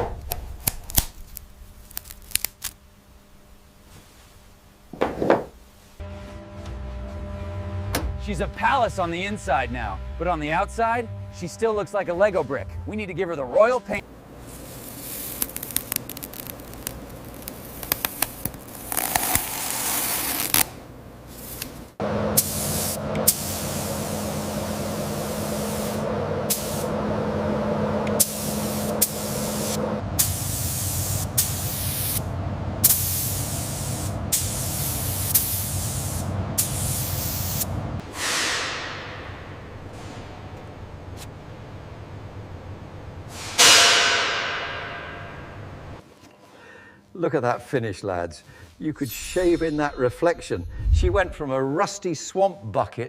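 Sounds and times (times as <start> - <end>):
steady low hum: 0.0 - 47.1, 49.3 - 51.9
paint spray gun hissing: 22.4 - 26.9, 28.2 - 32.2, 32.8 - 37.7.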